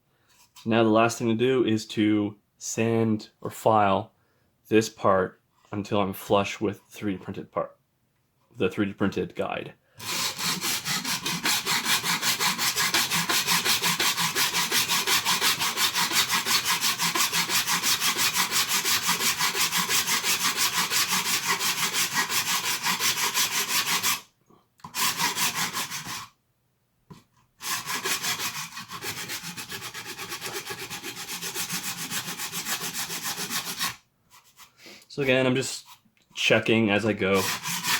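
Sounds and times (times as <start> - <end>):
hand sanding plastic rasping: 10.0 - 26.4, 27.1 - 37.9.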